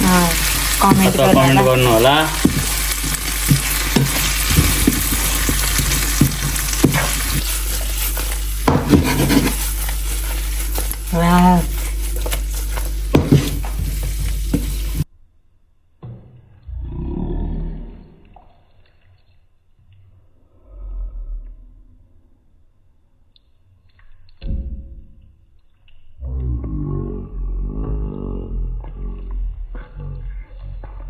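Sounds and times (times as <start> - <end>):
spatula knocking and scraping: 0.0 - 15.0
food sizzling in a pan: 0.0 - 15.1.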